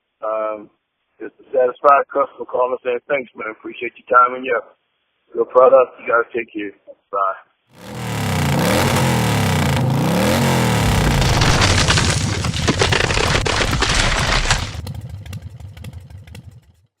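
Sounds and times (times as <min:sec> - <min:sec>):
motorcycle engine revving: 0:07.7 - 0:16.8.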